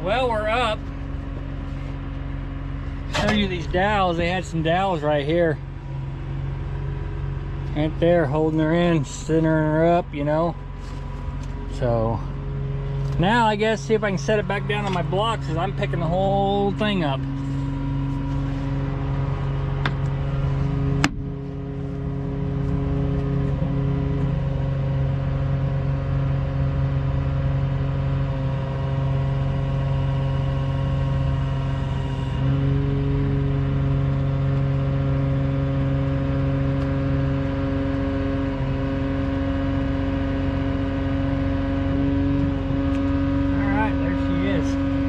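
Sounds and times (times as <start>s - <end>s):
lifting equipment engine running: 0.0s - 26.3s.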